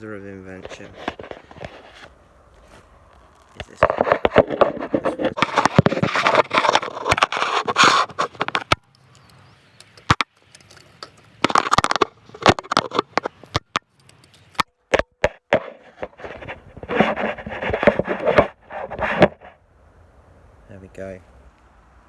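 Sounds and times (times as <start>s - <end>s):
scraping and rubbing on phone: 0.6s - 8.8s, 11.4s - 13.6s, 15.2s - 19.6s.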